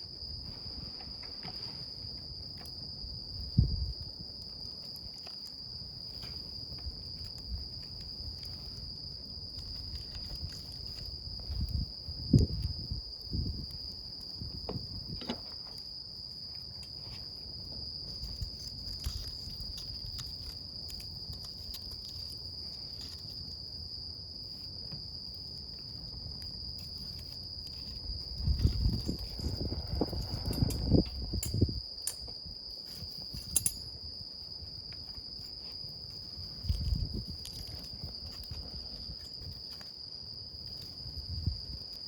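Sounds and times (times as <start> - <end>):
crickets chirring: 0.0 - 42.0
campfire crackling and popping: 3.4 - 17.0, 17.8 - 23.6.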